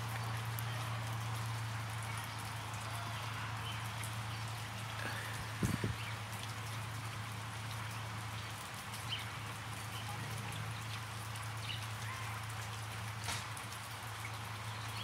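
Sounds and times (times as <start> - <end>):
light rain patter: 0.0 - 15.0.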